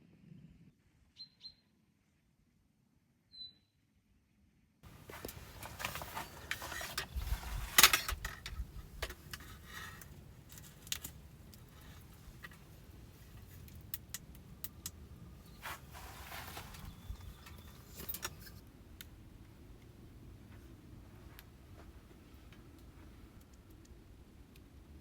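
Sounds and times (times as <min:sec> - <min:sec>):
brief rustles: 0:04.9 - 0:13.7, 0:15.4 - 0:18.6.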